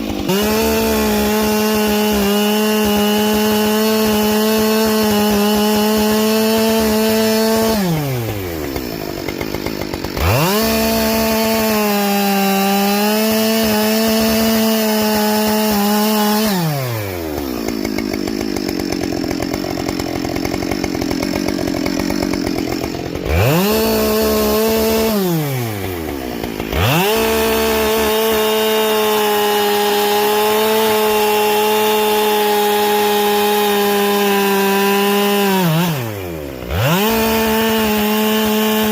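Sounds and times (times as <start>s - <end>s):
chainsaw cutting firewood: 0.0s - 38.9s.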